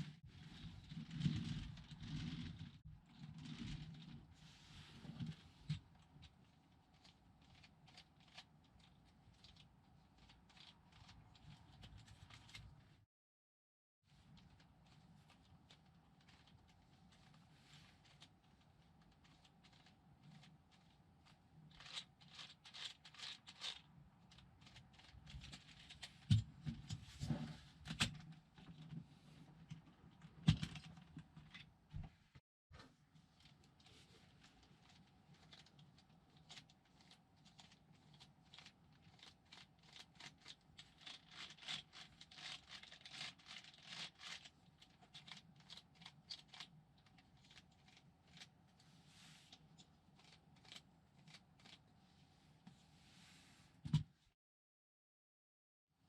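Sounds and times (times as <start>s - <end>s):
plastic parts clicking and rattling: 5.0s - 12.8s, 14.2s - 31.7s, 33.4s - 48.6s.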